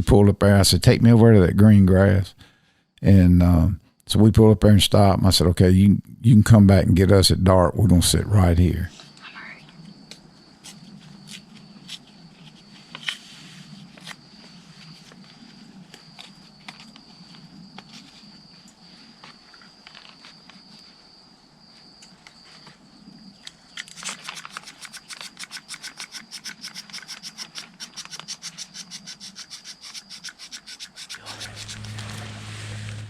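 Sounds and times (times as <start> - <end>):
rapid rhythmic scratching strokes: 24.2 - 33.0
low steady hum: 31.2 - 33.0
steady high-pitched tone: 31.2 - 33.0.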